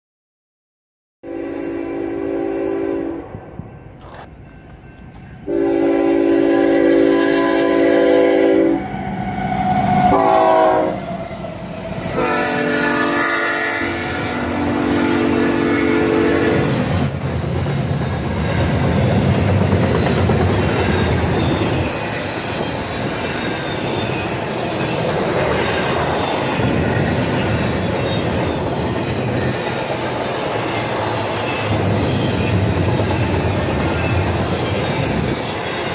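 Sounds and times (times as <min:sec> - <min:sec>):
locomotive air horn: 0:01.2 - 0:03.6, 0:05.4 - 0:11.0, 0:12.0 - 0:16.8
train rumble and wheel clatter: 0:02.2 - 0:35.9.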